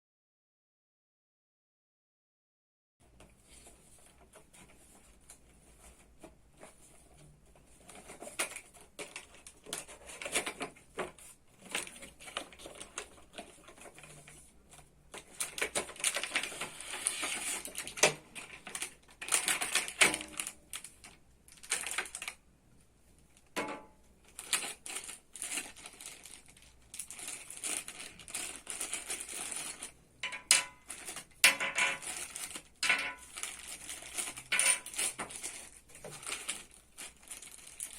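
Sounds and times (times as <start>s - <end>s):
packaging being opened by hand: 6.6s - 22.4s, 24.2s - 37.9s.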